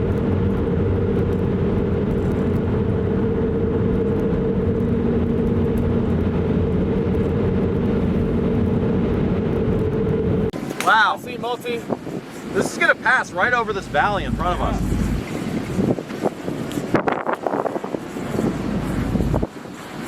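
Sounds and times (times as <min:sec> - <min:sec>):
car engine running: 0:00.0 - 0:10.5, 0:13.5 - 0:15.9
constant hum: 0:00.0 - 0:20.0
road noise: 0:00.0 - 0:20.0.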